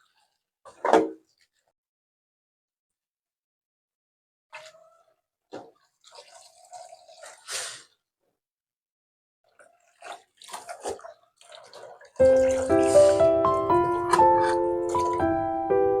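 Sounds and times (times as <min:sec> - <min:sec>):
tap water splashing: 0:09.5 - 0:15.6.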